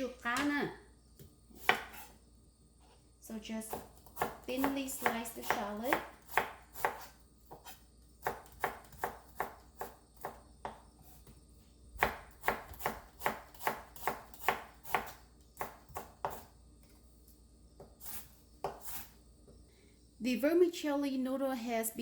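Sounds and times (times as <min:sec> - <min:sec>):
knife slicing on cutting board: 0:06.3 - 0:09.9, 0:18.0 - 0:19.1.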